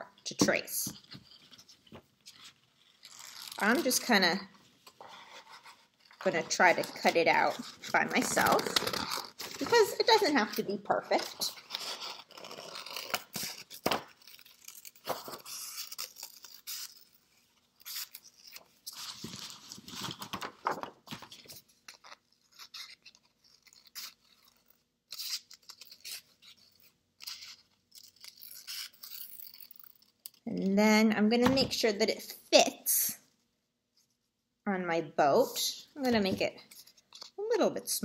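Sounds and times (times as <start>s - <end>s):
paper rustling: 4.8s - 30.1s.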